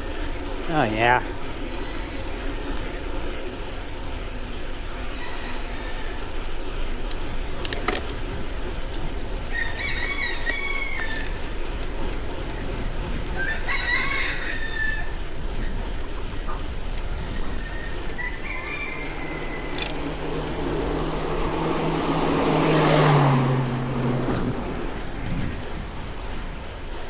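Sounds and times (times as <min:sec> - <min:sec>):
steady low rumble: 0:00.0 - 0:27.0
rooster crowing: 0:05.1 - 0:06.4, 0:09.5 - 0:11.5, 0:13.4 - 0:15.2, 0:17.6 - 0:23.3.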